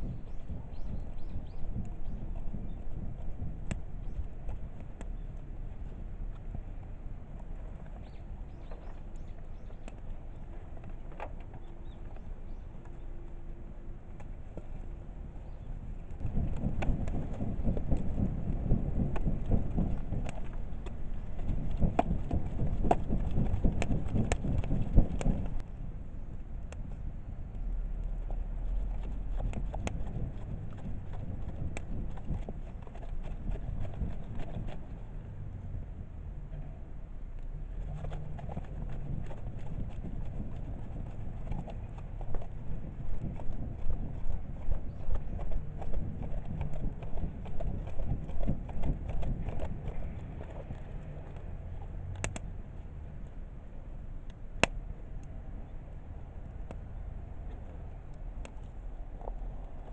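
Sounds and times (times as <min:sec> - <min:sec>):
wood fire: 0:00.0 - 0:13.4, 0:14.2 - 0:25.7, 0:26.3 - 0:36.1, 0:37.3 - 0:59.9
low steady rumble: 0:00.0 - 0:59.9
wood fire popping and snapping: 0:01.4 - 0:05.2, 0:16.0 - 0:25.7, 0:28.9 - 0:34.9, 0:54.3 - 0:55.3.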